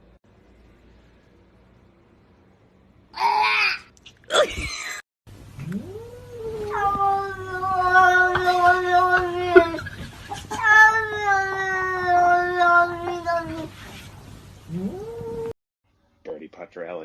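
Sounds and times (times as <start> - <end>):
cat yowling: 5.6 - 13.7.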